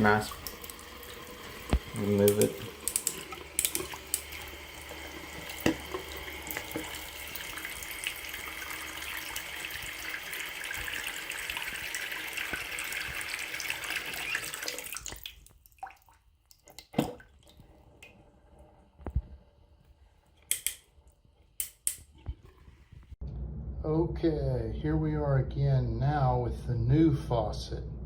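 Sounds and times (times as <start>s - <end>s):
water running from faucet into sink: 0.0s - 15.4s.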